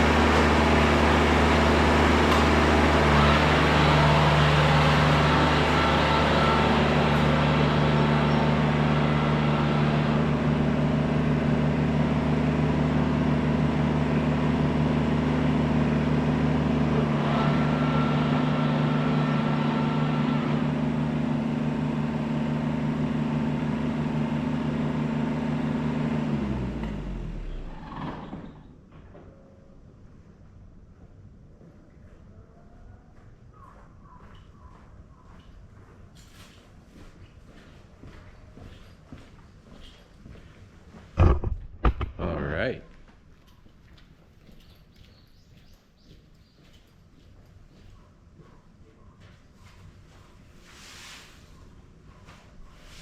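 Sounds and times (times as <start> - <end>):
tractor diesel engine running: 0.0 - 28.7
engine winding down: 0.0 - 28.8.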